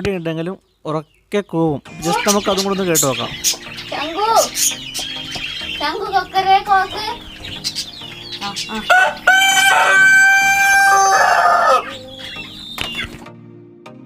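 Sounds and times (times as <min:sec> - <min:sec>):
rooster clucking: 0:07.8 - 0:12.2
rooster crowing: 0:08.8 - 0:12.1.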